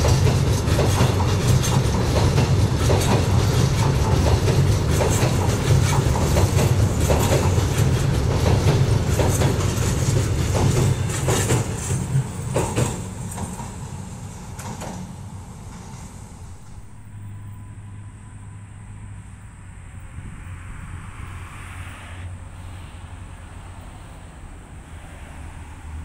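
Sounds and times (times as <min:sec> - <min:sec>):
wheels clacking on rails: 0:00.0 - 0:19.4
train carriages rumbling: 0:00.0 - 0:20.7.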